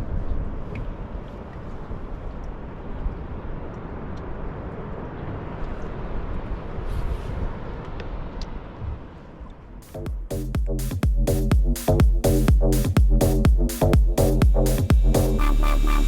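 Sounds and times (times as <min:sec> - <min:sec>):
outboard boat engine rumbling: 0:09.9 - 0:16.0.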